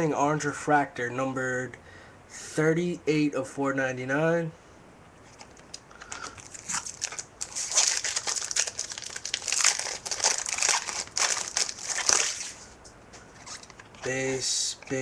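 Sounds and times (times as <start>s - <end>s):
foil wrapper crinkling: 5.3s - 12.8s.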